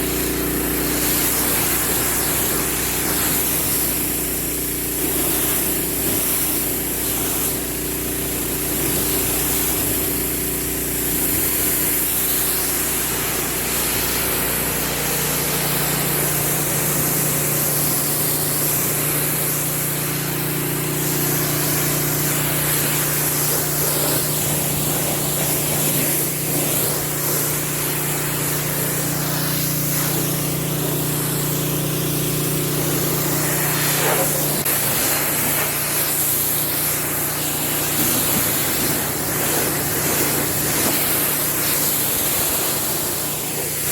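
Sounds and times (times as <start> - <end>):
pressure washer engine hum: 0.0 - 43.9
water spray hissing: 0.0 - 43.9.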